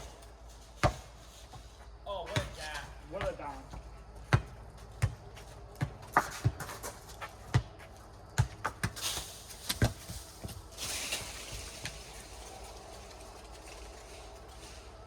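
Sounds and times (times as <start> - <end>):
ball smacking on court and hands: 4.3 - 10.6.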